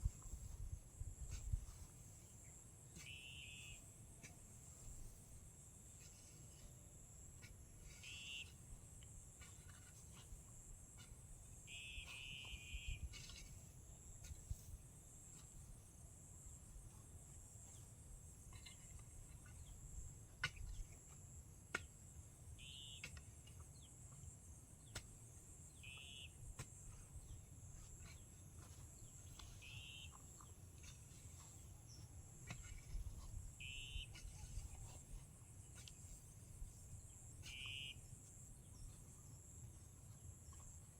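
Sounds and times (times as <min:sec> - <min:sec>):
insects droning: 0:02.2 - 0:04.0, 0:04.7 - 0:40.9
short bird calls: 0:03.0 - 0:03.8, 0:08.0 - 0:08.6, 0:11.7 - 0:13.1, 0:22.6 - 0:23.1, 0:25.8 - 0:26.4, 0:29.4 - 0:30.2, 0:33.6 - 0:34.9, 0:37.4 - 0:38.1.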